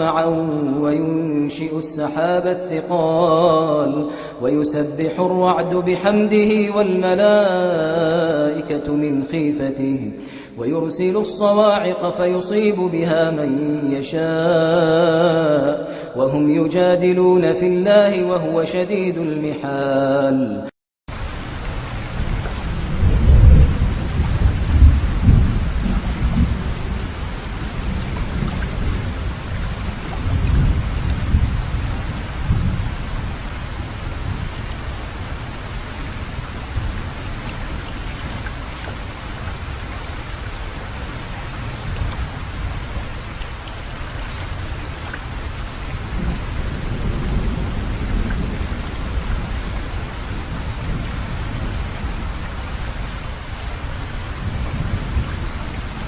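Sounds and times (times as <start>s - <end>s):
rain falling: 21.1s - 56.0s
rolling thunder: 22.0s - 34.8s, 45.9s - 52.4s.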